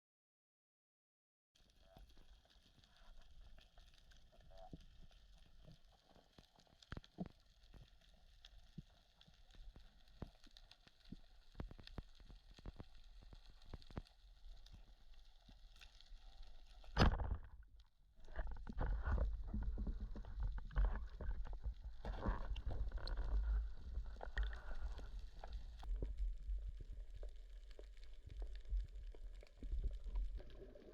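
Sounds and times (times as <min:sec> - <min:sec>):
water sloshing rumble: 0:16.9 - 0:30.9.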